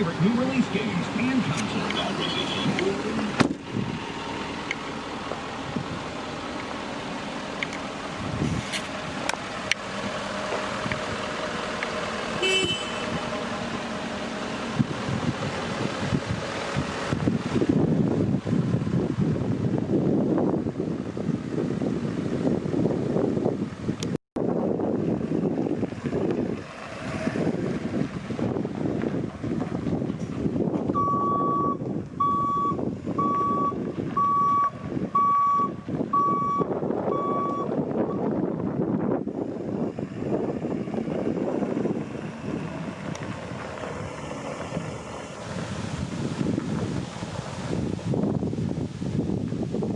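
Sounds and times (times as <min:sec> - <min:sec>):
wind noise on microphone: 0:00.0 - 0:04.5, 0:05.4 - 0:06.4, 0:07.7 - 0:11.6, 0:12.4 - 0:49.9
truck engine running: 0:00.0 - 0:49.9
truck horn toot: 0:12.4 - 0:13.3
truck back-up alarm beeping: 0:30.9 - 0:38.3.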